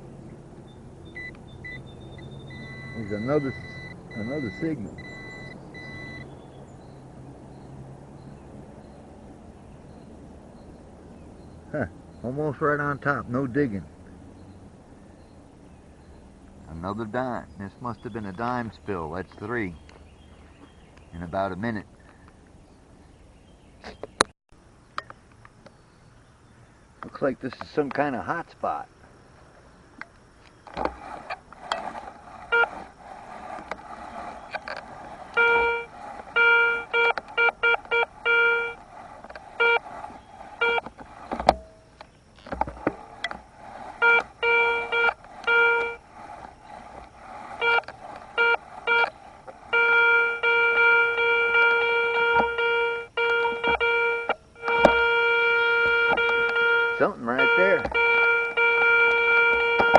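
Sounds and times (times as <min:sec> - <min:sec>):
metal detector beeps: 0:00.6 - 0:06.3, 0:30.9 - 0:59.9
handling clicks and scrapes in grass: 0:29.4 - 0:52.5.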